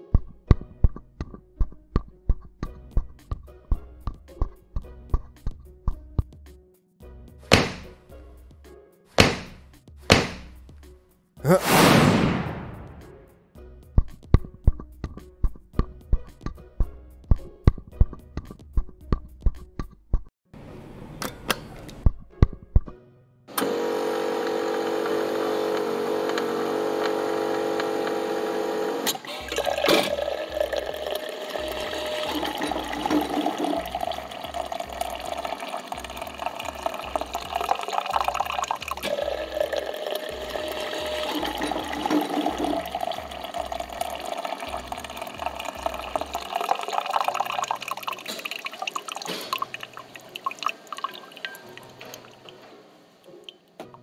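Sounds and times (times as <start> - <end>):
espresso machine humming: 23.5 - 47.7
coffee streaming into mug: 23.6 - 52.7.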